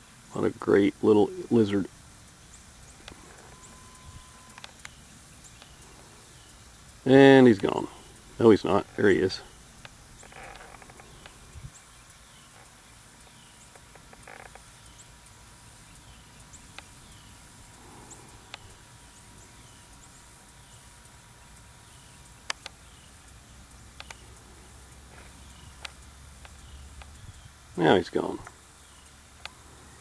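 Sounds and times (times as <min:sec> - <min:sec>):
sharp clicks: 0:02.3 - 0:06.5, 0:07.6 - 0:15.1, 0:15.9 - 0:20.8, 0:21.6 - 0:27.5, 0:28.4 - 0:29.6
faint high chirp falling in pitch: 0:03.5 - 0:05.0.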